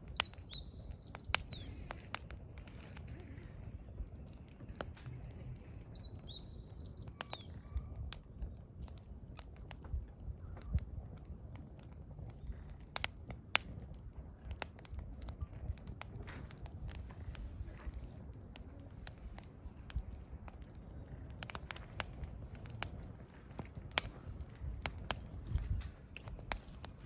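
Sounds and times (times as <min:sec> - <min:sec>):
firewood crackling and popping: 0:00.0 - 0:27.0
bird chirping: 0:00.1 - 0:01.8, 0:05.8 - 0:07.8.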